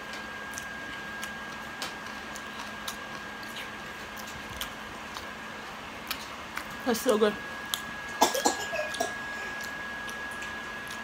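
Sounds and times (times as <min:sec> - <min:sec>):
chewing mouth clicks and smacks: 0:00.1 - 0:07.9.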